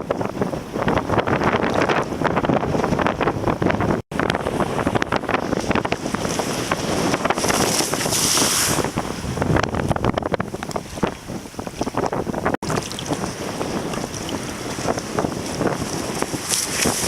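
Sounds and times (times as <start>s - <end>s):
strong wind buffeting microphone: 0.0s - 17.0s
rushing water: 4.0s - 17.0s.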